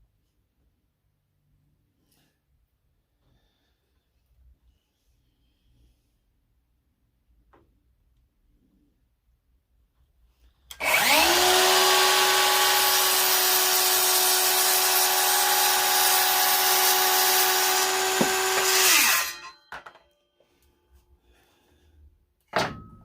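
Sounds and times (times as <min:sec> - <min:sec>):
electric power saw cutting board: 0:10.7 - 0:19.6.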